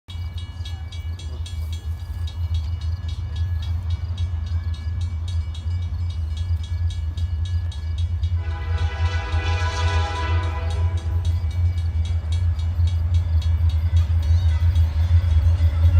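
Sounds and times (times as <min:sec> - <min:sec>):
crossing bell dinging: 0:00.1 - 0:15.9
train rumbling: 0:00.1 - 0:15.9
train horn: 0:08.3 - 0:11.6.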